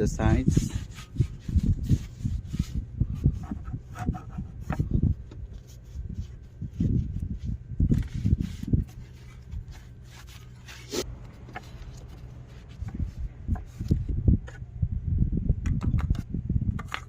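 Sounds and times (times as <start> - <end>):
rag rubbing: 0.4 - 13.9
short scrapes: 7.9 - 13.9.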